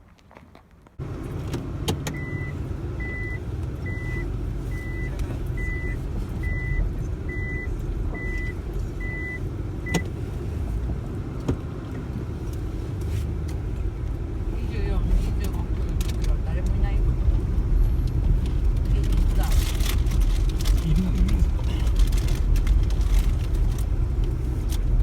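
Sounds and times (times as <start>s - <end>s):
car engine rumble: 0.4s - 25.0s
high warning beeps: 2.2s - 10.0s.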